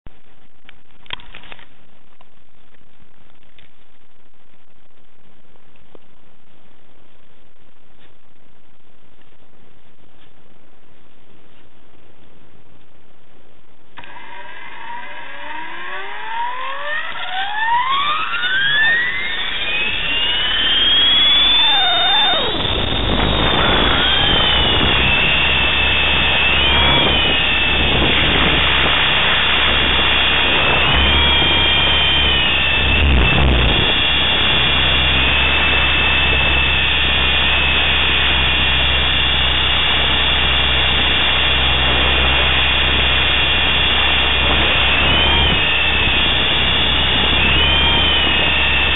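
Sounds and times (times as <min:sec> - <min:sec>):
electric motor and gear whine: 0:13.9 - 0:48.9
helicopter rotor hum: 0:14.0 - 0:48.9.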